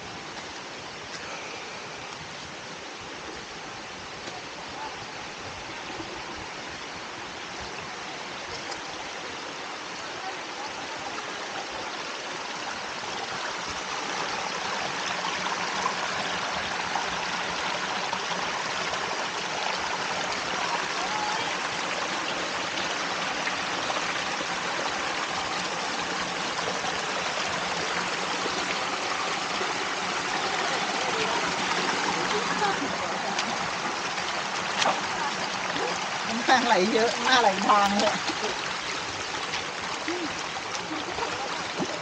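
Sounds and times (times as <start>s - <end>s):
stream and waterfall rushing: 0.0s - 42.0s.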